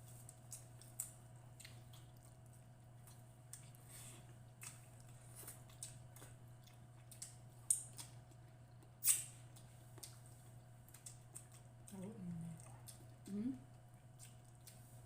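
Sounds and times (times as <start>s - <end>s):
low electrical hum: 0.0s - 15.0s
mouth chewing clicks and smacks: 4.5s - 12.0s, 12.6s - 15.0s.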